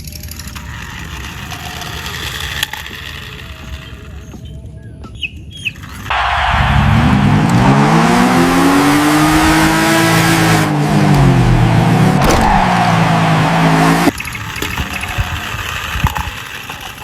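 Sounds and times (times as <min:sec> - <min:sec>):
loud engine with hiss: 0:06.1 - 0:14.1.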